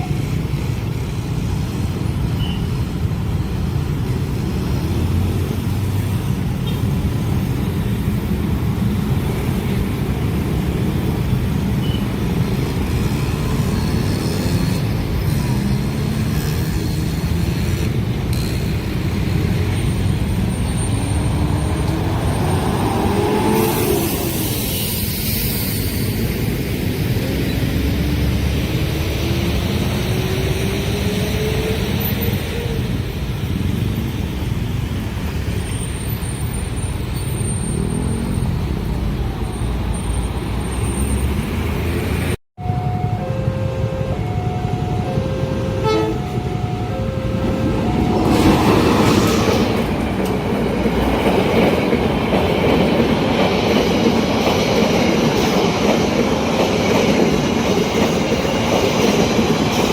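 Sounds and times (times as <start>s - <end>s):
vehicle engines accelerating: 12.3s - 24.7s.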